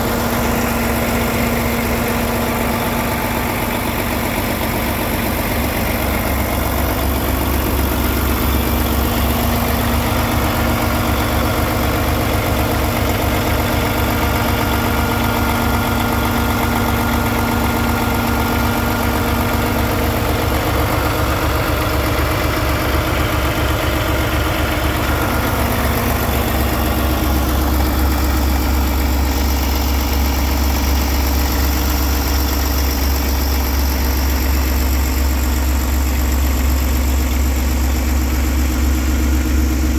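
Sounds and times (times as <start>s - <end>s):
truck diesel engine idling: 0.0s - 39.9s.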